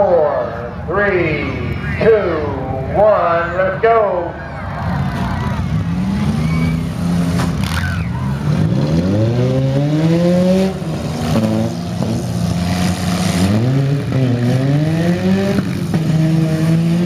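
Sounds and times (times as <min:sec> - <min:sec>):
engines revving hard: 0:04.6 - 0:17.0.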